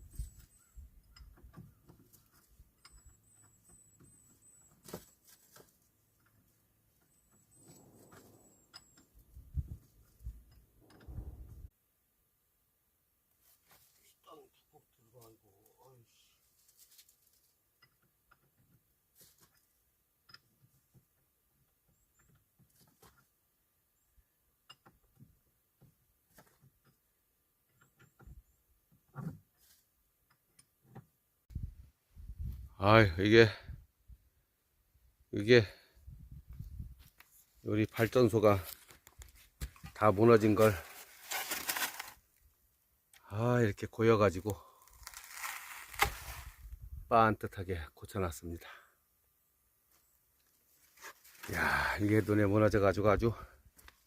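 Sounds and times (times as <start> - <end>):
faint clicks and rustles: 16.4 - 19.7.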